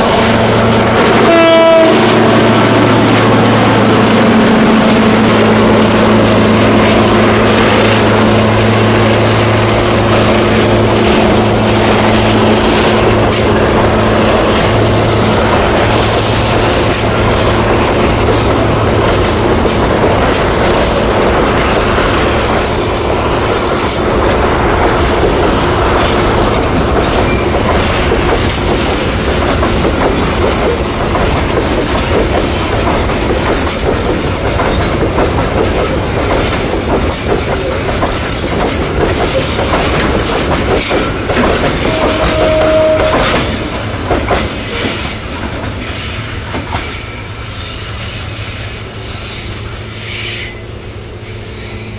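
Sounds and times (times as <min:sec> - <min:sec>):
train wheels clattering over rails: 0:00.0 - 0:48.0
high-pitched wheel squeals: 0:38.2 - 0:38.8, 0:40.6 - 0:51.9.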